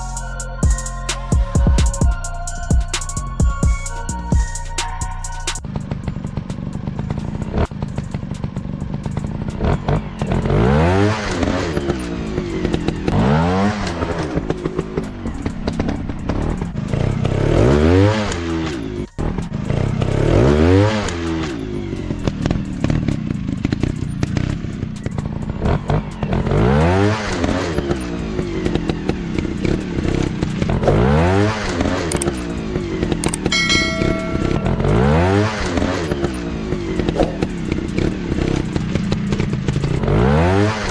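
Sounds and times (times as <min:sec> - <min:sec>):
dirt bike engines revving: 0:05.8 - 0:40.9.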